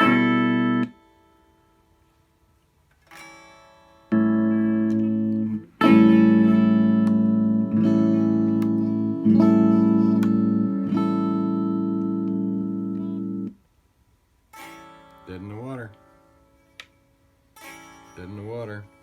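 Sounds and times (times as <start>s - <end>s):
electric guitar chords through amp: 0.0s - 1.6s, 3.4s - 13.6s.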